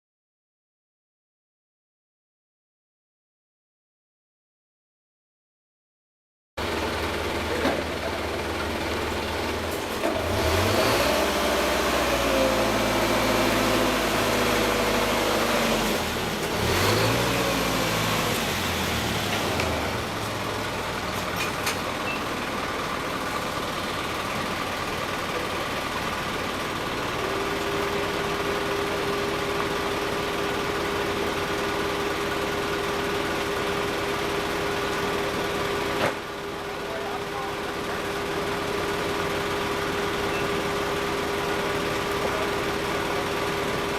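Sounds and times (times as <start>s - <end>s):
vehicle engine revving: 7.3s - 22.0s.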